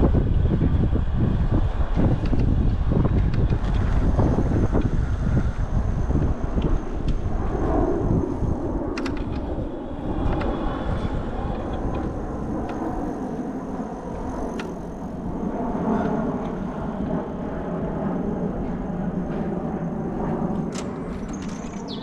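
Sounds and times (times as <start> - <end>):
traffic rumble: 0.0 - 22.0
sharp clicks: 20.7 - 22.0.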